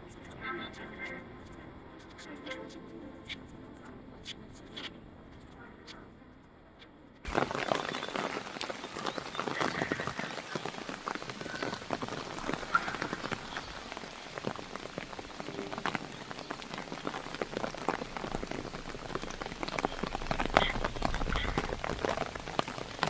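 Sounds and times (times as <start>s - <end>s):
heavy rain on a hard surface: 7.3s - 23.0s.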